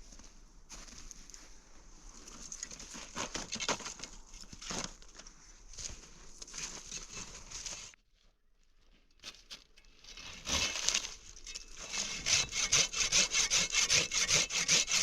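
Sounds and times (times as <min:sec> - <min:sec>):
footsteps crunching through snow: 0:00.0 - 0:08.0.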